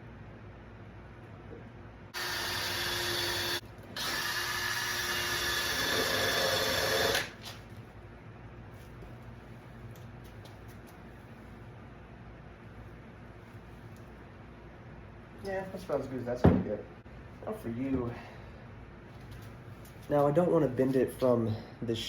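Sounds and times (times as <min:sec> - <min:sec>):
electric drill running: 0:02.1 - 0:07.4.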